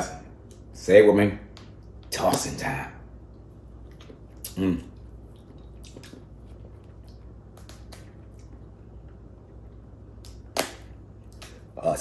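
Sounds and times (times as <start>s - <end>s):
steady low hum: 0.0s - 12.0s
clicks and wet squishes of food: 3.2s - 11.8s.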